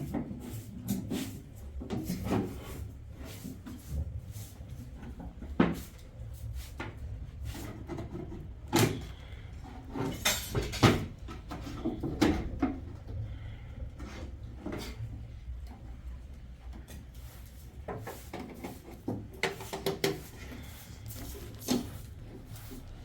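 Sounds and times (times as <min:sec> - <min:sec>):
objects knocking and clunking: 0:07.7 - 0:13.3, 0:17.7 - 0:22.0.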